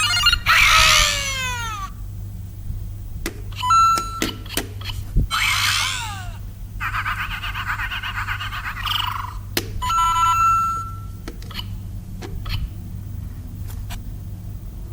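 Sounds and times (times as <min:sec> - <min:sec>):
electronic toy sound effects: 0:00.0 - 0:01.9, 0:03.6 - 0:04.4, 0:05.3 - 0:11.7
held beep: 0:03.6 - 0:04.4, 0:09.8 - 0:11.2.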